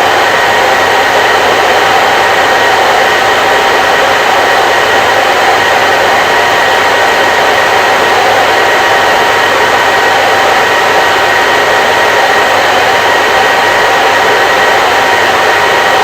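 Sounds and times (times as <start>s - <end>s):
hair dryer blowing: 0.0s - 16.0s.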